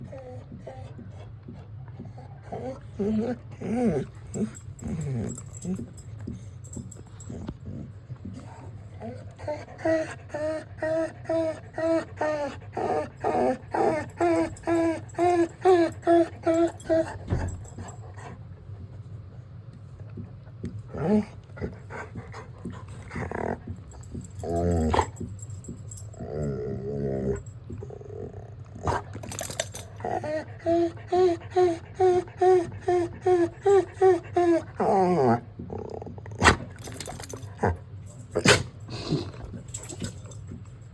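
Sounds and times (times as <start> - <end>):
dog whining: 2.4 - 6.1, 8.4 - 18.0, 21.0 - 27.5, 28.8 - 35.8, 36.4 - 40.6
dog barking: 38.3 - 38.7.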